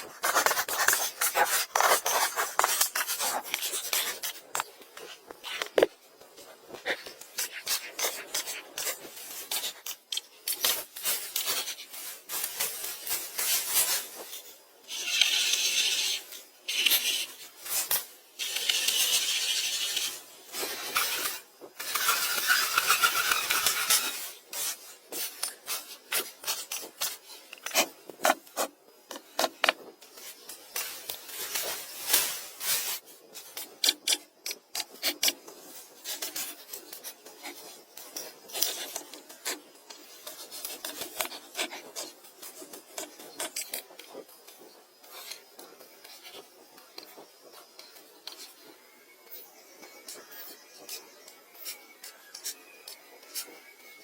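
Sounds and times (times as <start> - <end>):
scraping strokes on wood: 14.9 - 25.2.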